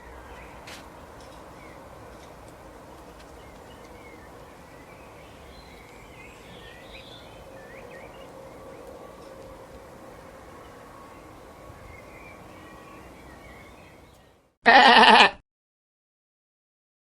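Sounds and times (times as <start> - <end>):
bird chirps: 3.4 - 8.9.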